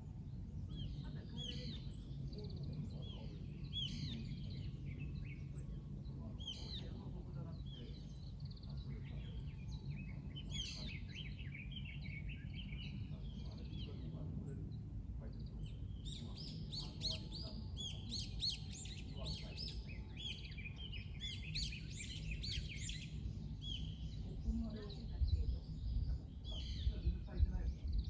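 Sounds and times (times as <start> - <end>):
small songbirds chirping: 0.0 - 28.0.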